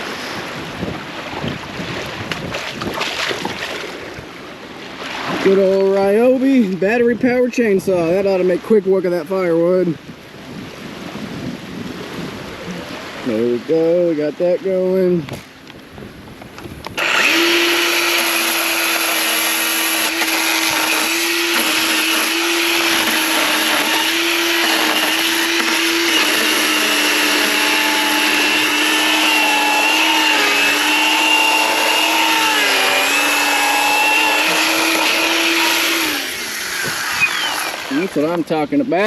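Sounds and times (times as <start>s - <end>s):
electric chainsaw cutting wood: 16.8s - 38.4s.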